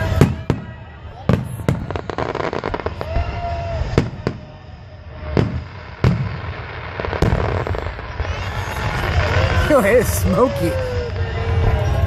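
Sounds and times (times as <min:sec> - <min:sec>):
fireworks booming with echo: 0:00.0 - 0:12.0.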